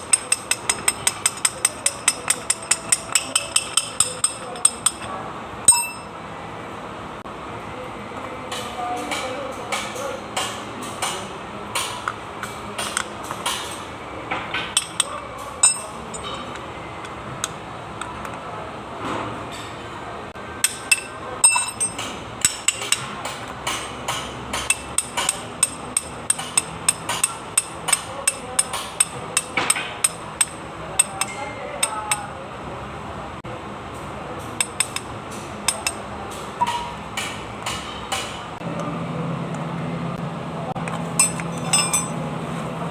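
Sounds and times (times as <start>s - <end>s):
metal tools tapping on engine parts: 0.0s - 6.2s, 8.5s - 18.4s, 20.5s - 32.3s, 34.4s - 38.4s, 40.8s - 42.2s.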